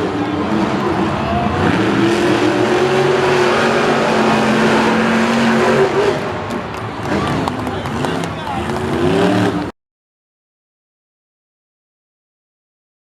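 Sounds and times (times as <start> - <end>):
monster truck engines running hard: 0.0 - 9.7.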